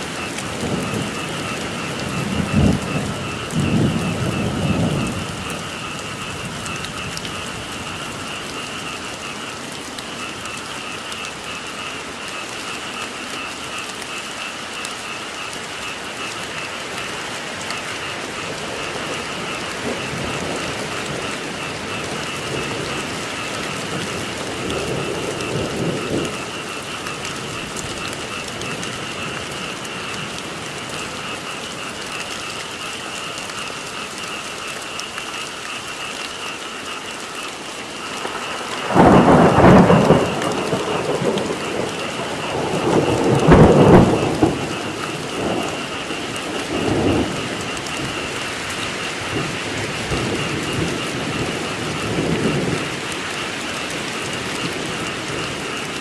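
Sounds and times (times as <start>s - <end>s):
thunder rolling: 0.0s - 9.4s, 18.3s - 30.7s, 38.0s - 56.0s
frog chorus: 0.0s - 56.0s
heavy rain: 0.0s - 56.0s.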